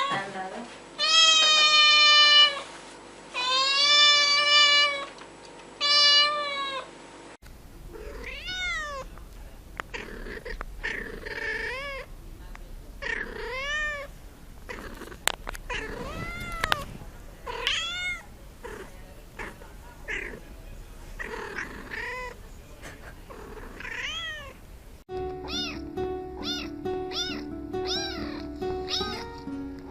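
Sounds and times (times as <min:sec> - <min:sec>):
cat meowing: 0:01.0 - 0:02.6, 0:03.4 - 0:05.1, 0:05.8 - 0:06.9, 0:07.9 - 0:09.1, 0:09.9 - 0:12.1, 0:13.0 - 0:14.1, 0:14.7 - 0:20.4, 0:21.2 - 0:22.4, 0:23.3 - 0:24.6, 0:25.4 - 0:29.3
music: 0:25.1 - 0:29.9.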